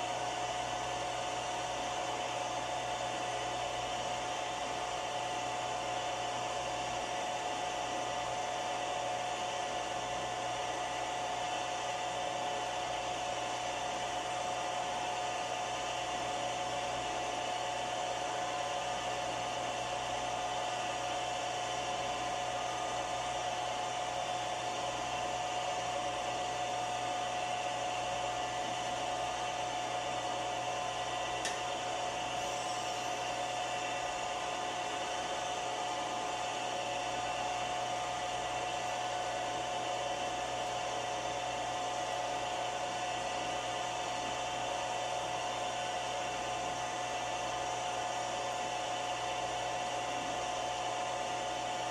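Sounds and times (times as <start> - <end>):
milling machine whirring: 31.0 - 36.0.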